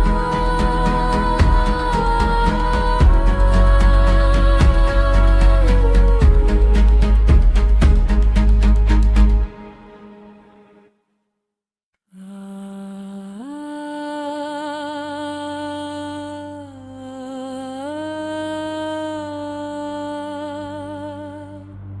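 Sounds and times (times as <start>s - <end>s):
wordless hummed vocal with vibrato: 0.0s - 8.5s
low drone: 0.0s - 10.0s.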